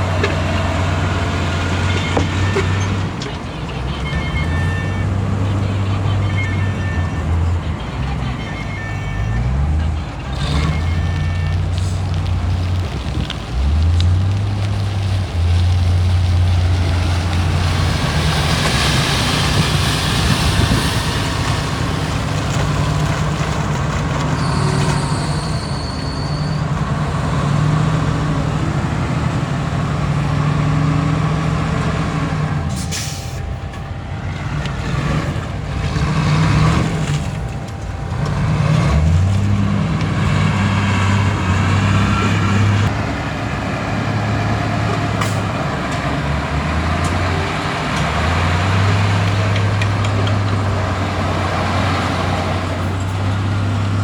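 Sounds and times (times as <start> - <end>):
heavy diesel engines under load: 0.0 - 54.0.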